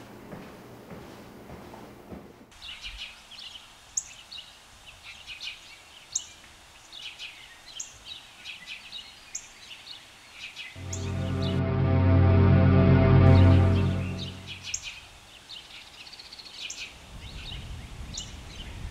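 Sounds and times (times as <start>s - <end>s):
songbirds chirping: 2.6s - 11.6s
music: 10.8s - 14.7s.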